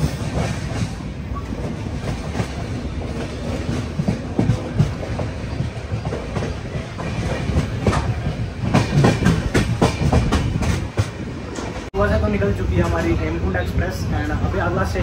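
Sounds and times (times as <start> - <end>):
train wheels clattering over rail joints: 1.6 - 11.9.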